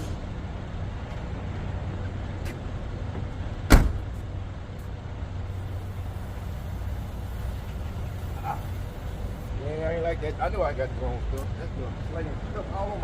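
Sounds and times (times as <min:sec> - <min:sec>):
car engine humming: 0:00.0 - 0:13.0
loud thump: 0:03.7 - 0:04.1.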